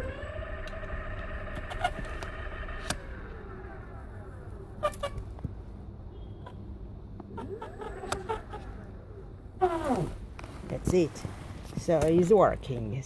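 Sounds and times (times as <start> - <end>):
electric motor whining: 0.0 - 5.5
low rumble of riding noise: 0.0 - 13.0.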